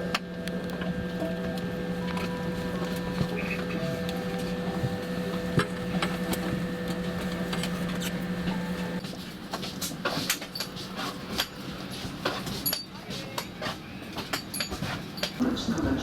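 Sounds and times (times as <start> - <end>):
airplane cabin hum: 0.0 - 10.2.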